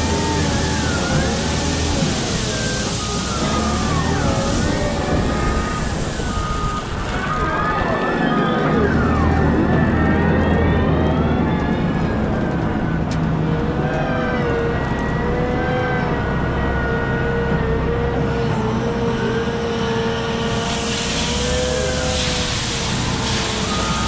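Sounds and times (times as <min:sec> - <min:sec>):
hissing rush: 0:00.0 - 0:07.2, 0:18.7 - 0:24.0
wheel loader diesel engine droning: 0:00.0 - 0:24.0.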